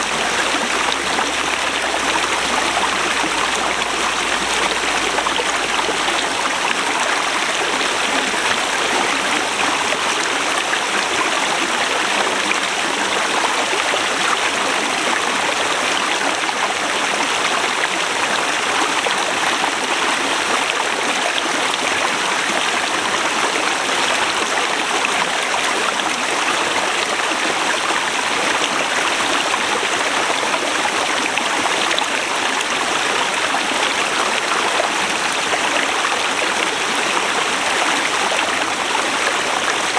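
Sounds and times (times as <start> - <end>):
river rushing over rocks: 0.0 - 10.7.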